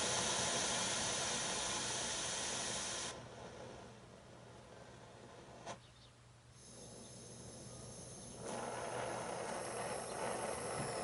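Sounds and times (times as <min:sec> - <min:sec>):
torch gas hissing: 0:00.0 - 0:04.0, 0:06.6 - 0:11.0.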